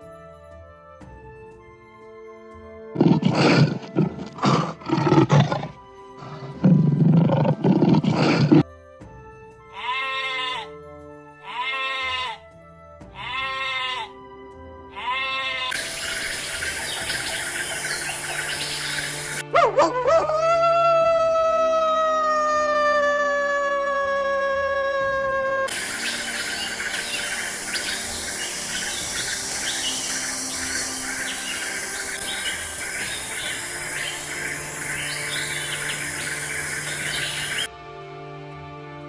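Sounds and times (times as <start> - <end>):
soft background music: 0.0 - 39.0
harsh animal calls: 3.0 - 8.6
pitched animal calls: 3.0 - 8.6
steady hiss: 15.8 - 19.4, 25.7 - 37.7.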